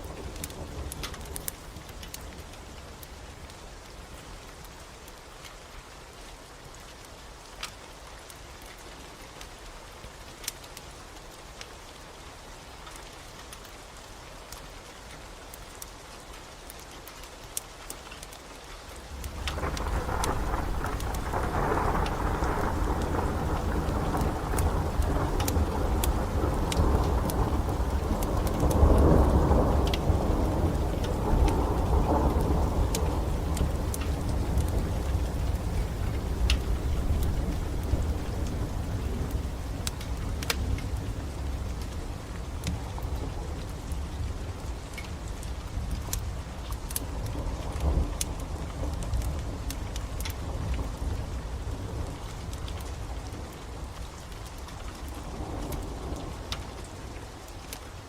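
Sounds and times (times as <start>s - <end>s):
wood fire popping and crackling: 0.0s - 3.1s, 16.6s - 58.0s
steady rain hiss: 0.0s - 58.0s
low rumble of thunder: 19.1s - 58.0s.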